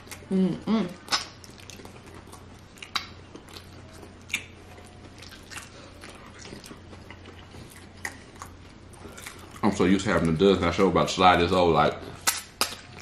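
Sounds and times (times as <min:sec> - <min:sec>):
chewing: 0:00.9 - 0:11.0.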